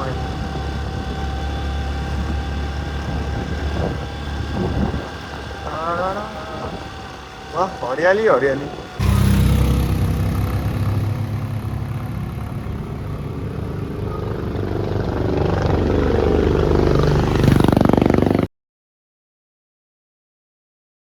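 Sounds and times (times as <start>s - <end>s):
motorcycle engine revving: 0.0s - 18.5s.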